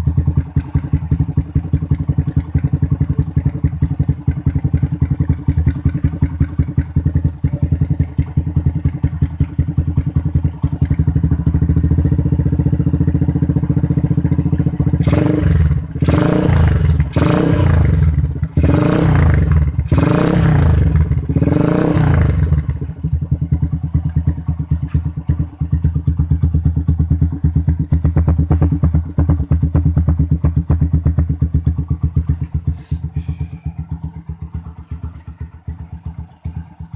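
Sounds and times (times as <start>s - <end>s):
motorcycle engine idling and revving: 0.0s - 36.9s.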